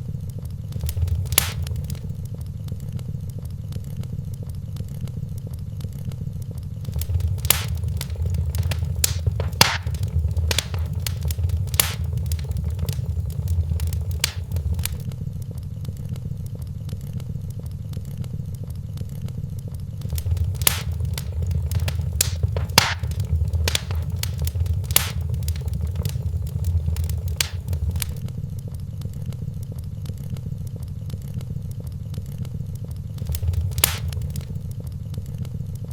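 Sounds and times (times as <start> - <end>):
wood fire crackling: 0.7 - 2.3, 6.8 - 15.1, 20.0 - 28.3, 33.2 - 34.7.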